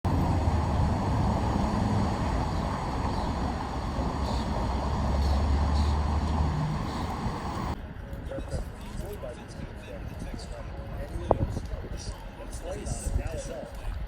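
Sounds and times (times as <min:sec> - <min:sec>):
low engine rumble: 0:00.1 - 0:08.0.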